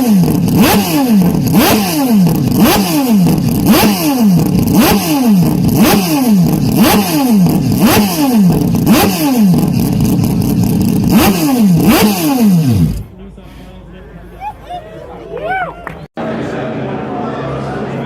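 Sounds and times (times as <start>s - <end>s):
race car engine revving: 0.0s - 13.1s.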